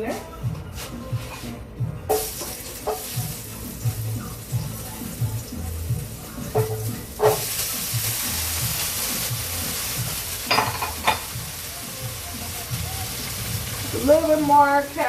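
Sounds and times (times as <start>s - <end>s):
vegetables sizzling in oil: 2.1s - 15.0s
utensil clinking against pan: 10.5s - 11.3s.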